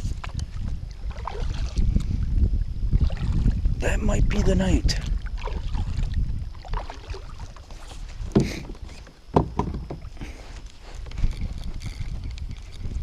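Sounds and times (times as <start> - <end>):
low steady rumble: 0.0 - 13.0
gear knocking on kayak: 8.3 - 10.1.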